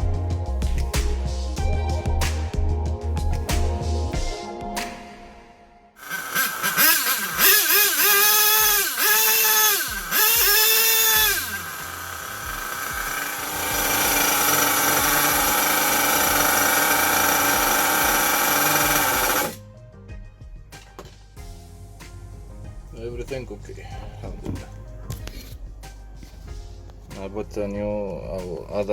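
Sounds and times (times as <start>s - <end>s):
power drill whining: 6.0s - 19.6s.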